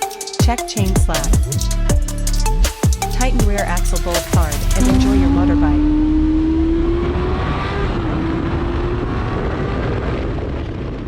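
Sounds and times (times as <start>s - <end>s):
motorcycle engine running: 3.2s - 8.7s.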